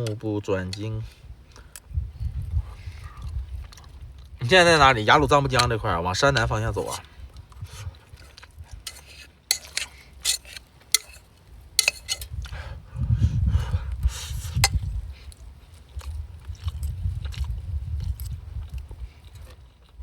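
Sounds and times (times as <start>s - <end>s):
person chewing: 2.4s - 4.4s, 6.4s - 12.6s, 13.9s - 20.0s
utensils clinking against bowl: 8.8s - 12.3s.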